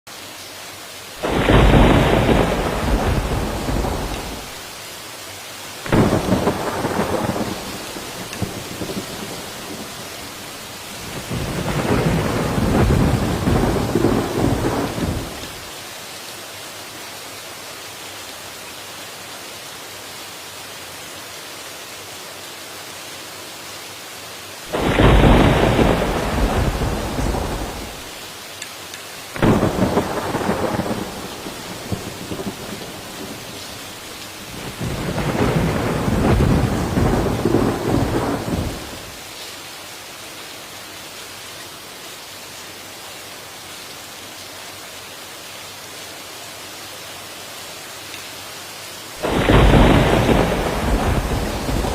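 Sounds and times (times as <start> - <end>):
rain hiss: 0.1 - 51.9
thunder peals: 1.2 - 4.5, 5.9 - 9.9, 24.7 - 28.1, 29.4 - 33.4, 34.6 - 39.0, 49.2 - 51.9.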